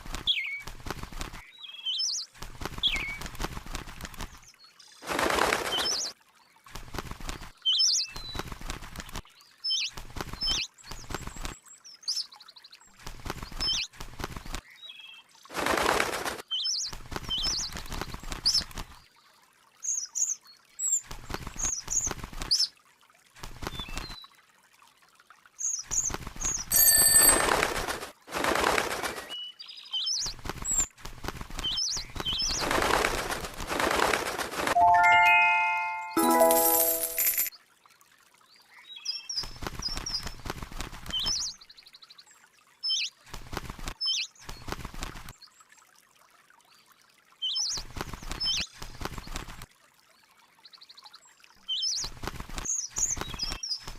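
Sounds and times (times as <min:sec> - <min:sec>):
bird wings flapping: 0:00.0 - 0:01.5, 0:02.4 - 0:06.1, 0:06.7 - 0:09.2, 0:09.9 - 0:11.5, 0:13.0 - 0:14.6, 0:15.5 - 0:19.0, 0:21.1 - 0:22.6, 0:23.4 - 0:24.1, 0:25.9 - 0:29.4, 0:30.2 - 0:37.5, 0:39.4 - 0:41.4, 0:43.3 - 0:45.3, 0:47.8 - 0:49.6, 0:52.0 - 0:53.9
short high chirps: 0:34.8 - 0:37.4.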